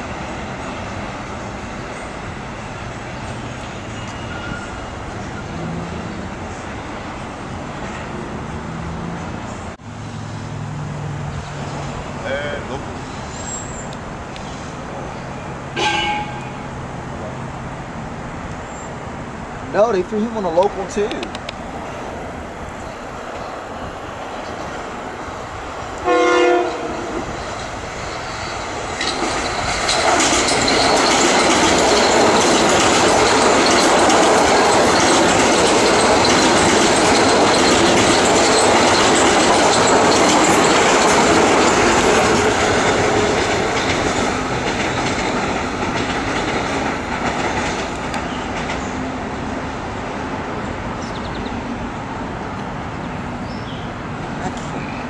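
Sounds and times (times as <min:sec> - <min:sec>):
express train passing: 0:00.0 - 0:55.0
train horn blast: 0:15.8 - 0:16.6, 0:26.0 - 0:27.2.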